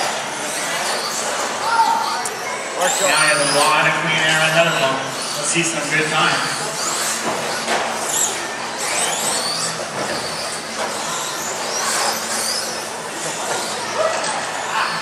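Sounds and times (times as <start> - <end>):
remote control car motors whining: 0.0 - 15.0.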